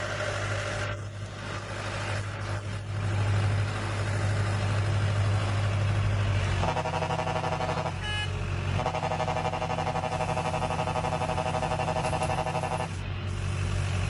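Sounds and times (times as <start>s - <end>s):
heavy truck engine running: 0.0s - 14.0s.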